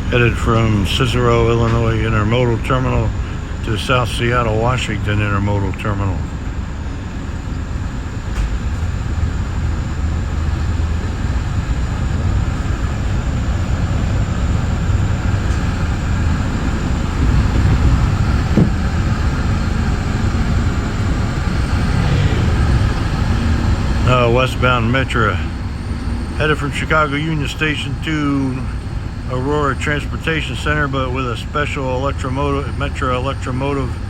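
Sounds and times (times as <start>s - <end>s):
train rumble and wheel-on-rail noise: 0.0s - 34.0s.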